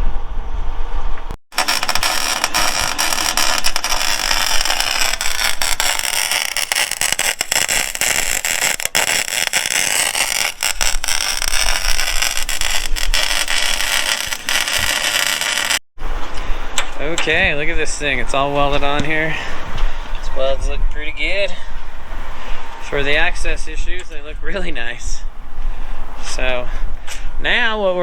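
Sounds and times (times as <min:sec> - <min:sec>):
welding arc crackling and sizzling: 0:01.5 - 0:15.8.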